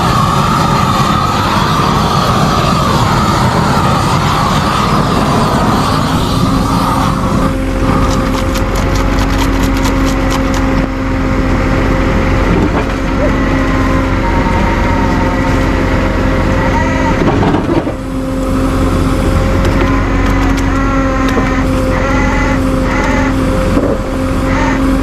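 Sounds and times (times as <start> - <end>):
flamethrower rushing: 0.0 - 20.4
engine hum: 0.0 - 25.0.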